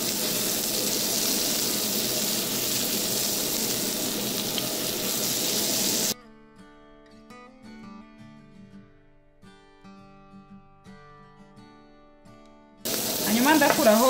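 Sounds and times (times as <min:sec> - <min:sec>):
burger patties sizzling in a pan: 0:00.0 - 0:06.2, 0:12.9 - 0:14.0
acoustic guitar music: 0:06.2 - 0:13.6.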